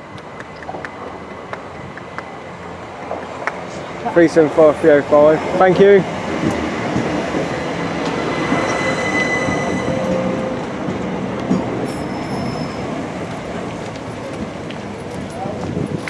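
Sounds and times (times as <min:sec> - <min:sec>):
train running past on track: 0:00.2 - 0:14.9
wheel squeals: 0:04.4 - 0:15.4.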